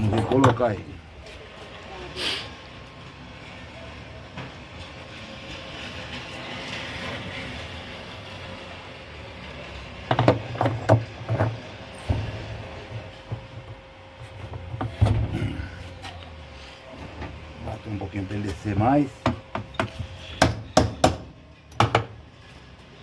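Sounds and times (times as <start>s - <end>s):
metal knocks and clanks: 10.0s - 15.6s, 18.4s - 22.3s.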